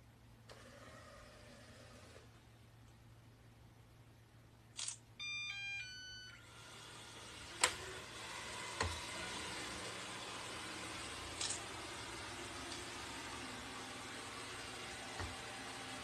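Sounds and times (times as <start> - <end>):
electronic start-up melody beeps: 5.2 - 6.4
vacuum motor running with hiss: 6.4 - 16.0.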